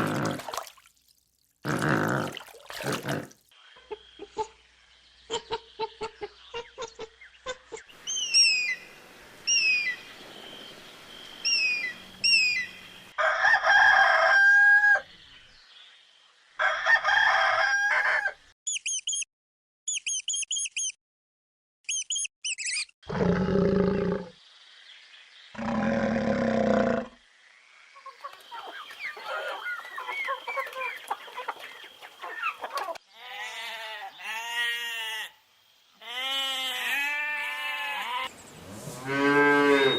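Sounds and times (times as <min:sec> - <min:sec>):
rooster crowing: 0:13.2 - 0:15.1, 0:16.6 - 0:18.4
chickens clucking: 0:28.0 - 0:33.0.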